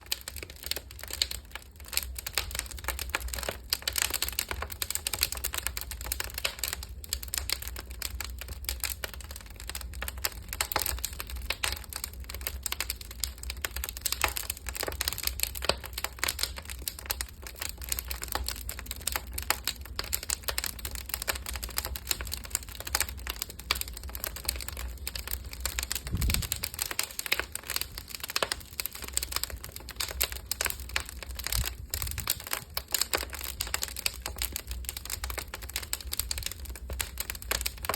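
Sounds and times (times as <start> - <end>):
wood fire crackling: 0.0 - 37.9
low rumble: 26.0 - 26.8.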